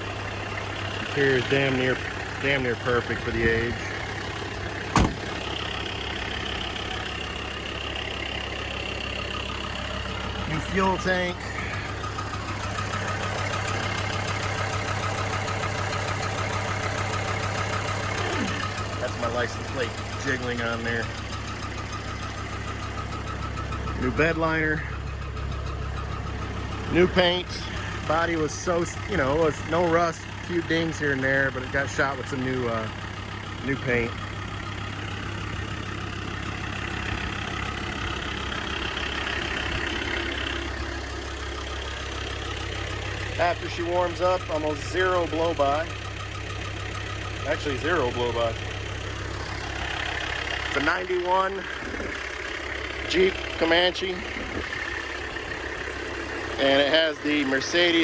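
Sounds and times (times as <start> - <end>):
diesel engine idling: 0.0 - 58.0
license plate jiggling: 3.2 - 7.0.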